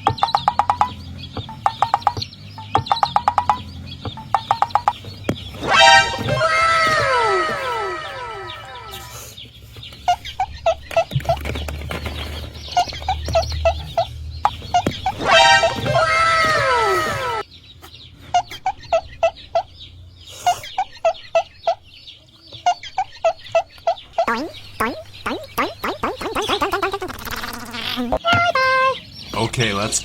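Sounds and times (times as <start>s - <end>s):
chickens clucking: 0.0s - 30.0s
chicken squawk: 5.5s - 9.4s, 12.8s - 17.4s, 18.2s - 22.0s.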